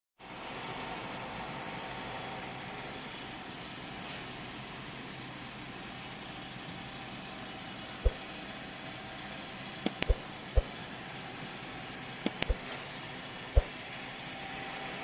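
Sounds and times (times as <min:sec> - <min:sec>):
short sharp knocks: 0:09.9 - 0:10.8, 0:12.3 - 0:12.7.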